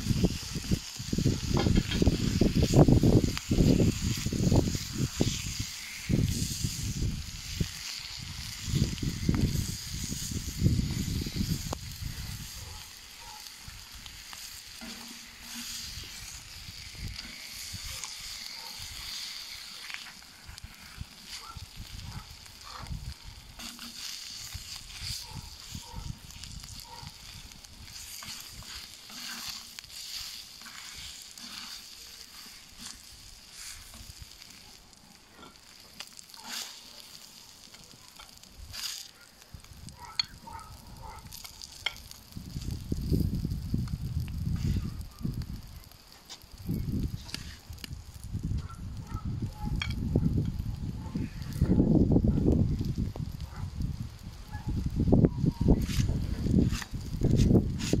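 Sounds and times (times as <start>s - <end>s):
eggs and bacon sizzling: 0.0s - 58.0s
metal spatula scraping steel: 14.7s - 16.4s, 27.9s - 33.9s.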